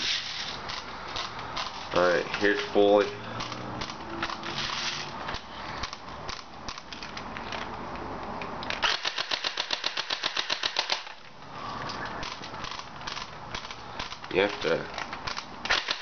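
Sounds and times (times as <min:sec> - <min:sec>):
rustling noise: 0:00.0 - 0:02.8, 0:04.4 - 0:05.8
airsoft rifle firing on full auto: 0:08.8 - 0:11.1, 0:15.7 - 0:16.0.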